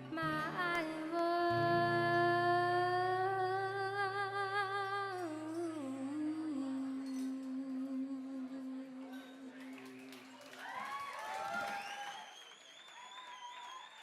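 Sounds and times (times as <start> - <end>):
person singing with vibrato: 0.0 - 9.8.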